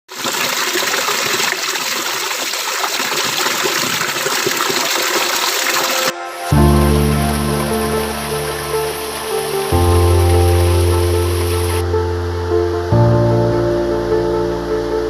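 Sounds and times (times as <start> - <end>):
waterfall rushing: 0.2 - 11.9
music: 6.1 - 15.0.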